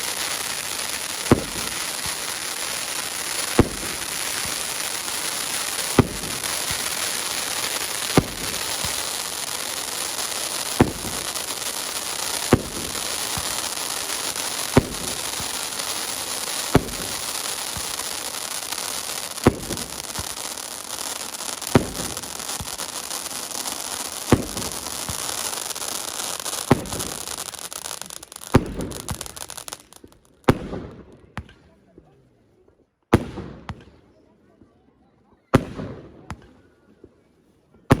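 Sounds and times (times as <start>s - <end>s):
fireworks hissing: 0.0s - 30.2s
fireworks bangs: 0.0s - 31.6s, 33.1s - 34.0s, 35.6s - 36.6s.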